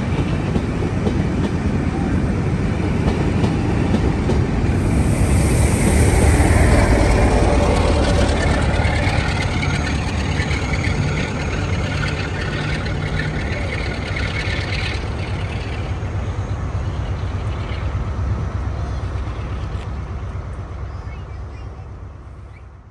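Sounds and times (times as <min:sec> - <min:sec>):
train rumbling: 0:00.0 - 0:22.8
hiss: 0:04.6 - 0:13.4.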